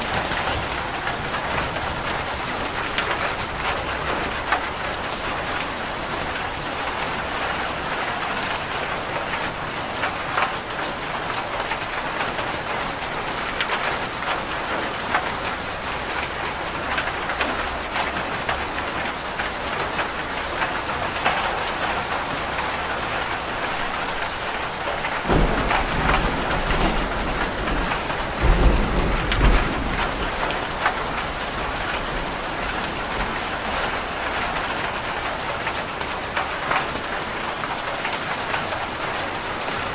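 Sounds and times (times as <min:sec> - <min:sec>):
rain on a roof: 0:00.0 - 0:39.9
thunder rumbling: 0:21.2 - 0:35.4.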